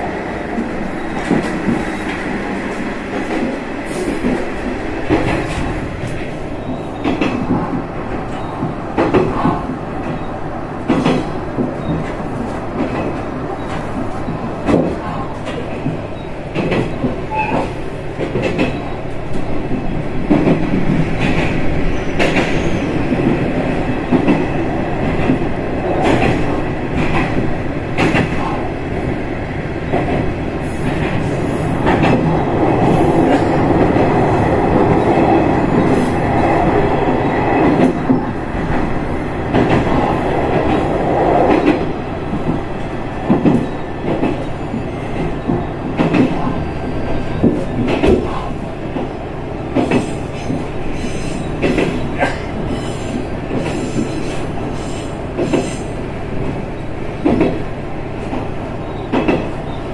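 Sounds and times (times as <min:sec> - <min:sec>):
train running rumble: 0:00.0 - 0:59.9.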